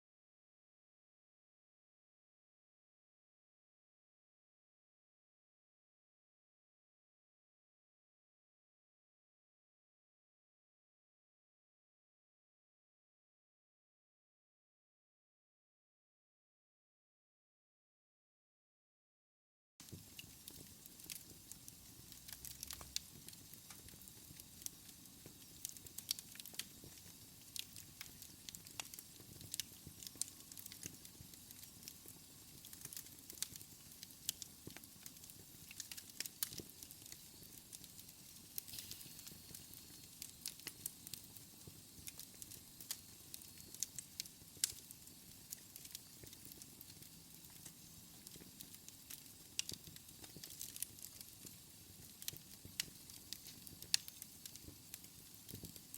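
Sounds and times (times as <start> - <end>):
faint hiss of burning: 19.8 - 55.9
fire pops and snaps: 19.8 - 55.9
wood fire crackling: 19.8 - 55.9.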